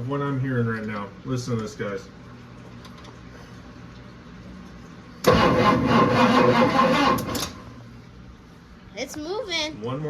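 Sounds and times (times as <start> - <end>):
car engine cranking on starter: 5.2 - 7.7.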